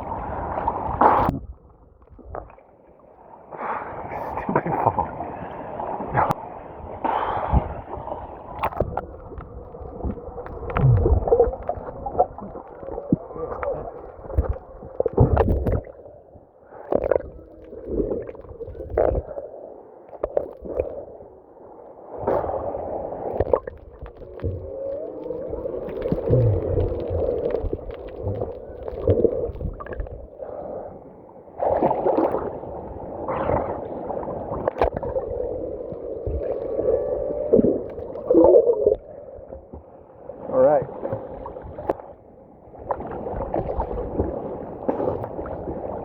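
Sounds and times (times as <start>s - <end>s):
water rushing over microphone: 0.0s - 46.0s
humpback whale song: 24.0s - 46.0s.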